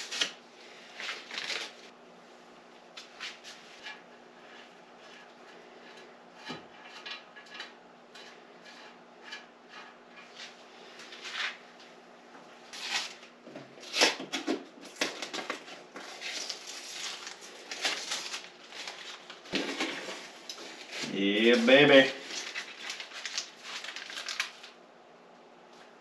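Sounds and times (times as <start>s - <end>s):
objects being handled: 12.8s - 24.7s.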